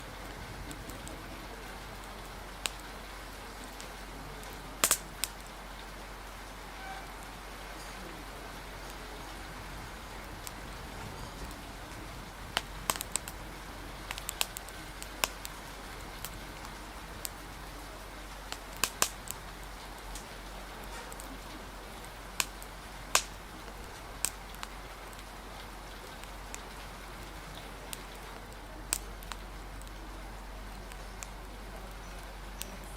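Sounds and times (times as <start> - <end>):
rain hissing: 0.0 - 32.9
wood fire crackling: 0.0 - 32.9.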